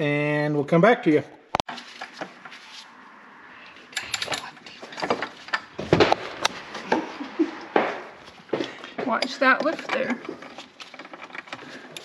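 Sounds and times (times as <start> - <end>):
tools clattering in a toolbox: 3.9 - 7.0, 8.6 - 12.0.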